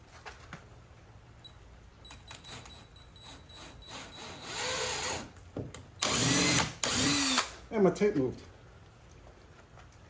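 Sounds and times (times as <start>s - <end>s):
power drill drilling: 3.9s - 5.2s, 6.0s - 7.6s.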